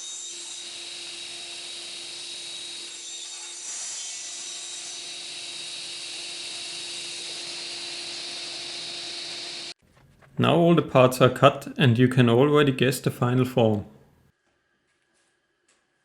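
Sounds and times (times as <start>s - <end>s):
table saw cutting wood: 0.0s - 9.8s.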